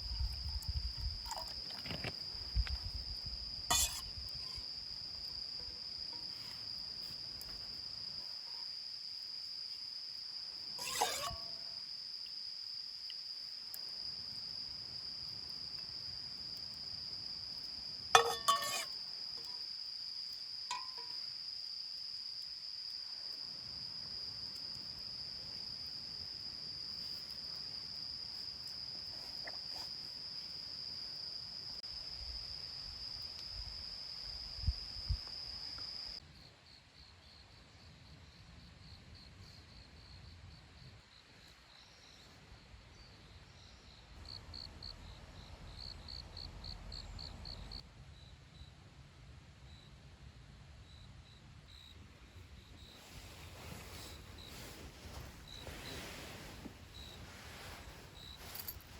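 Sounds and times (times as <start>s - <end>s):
insects trilling: 0.0s - 37.8s, 50.9s - 58.9s
pulsing insect chirp: 0.0s - 37.9s
sharp clinks: 18.2s - 18.9s, 58.3s - 58.9s.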